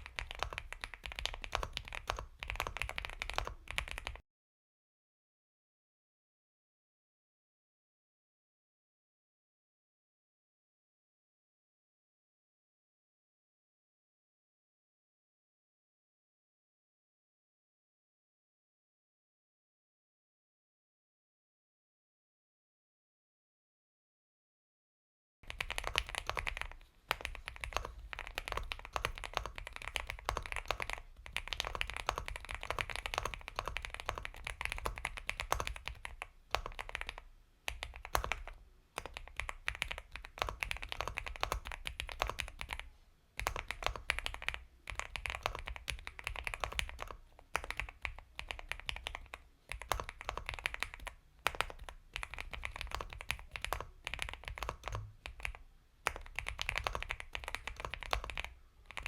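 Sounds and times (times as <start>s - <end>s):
typing on mechanical keyboard: 0.0s - 4.2s, 25.5s - 59.0s.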